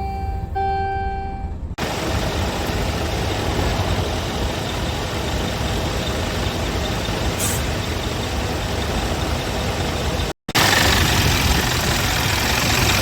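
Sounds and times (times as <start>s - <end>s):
diesel truck idling: 1.8s - 13.0s
air release hiss: 7.4s - 7.7s.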